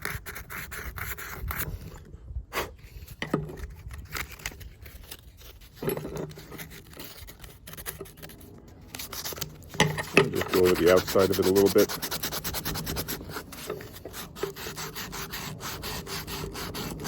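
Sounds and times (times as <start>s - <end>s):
sandpaper scratching on steel: 4.2s - 17.0s.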